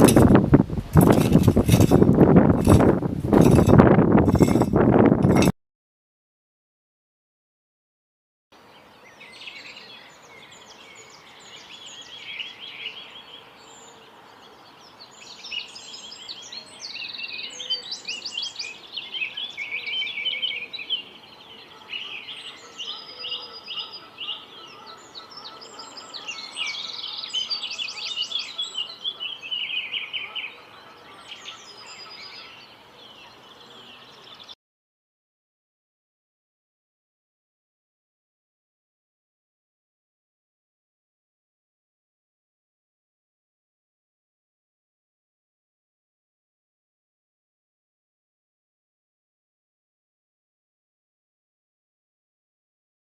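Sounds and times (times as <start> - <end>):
songbirds singing: 8.6 - 34.6.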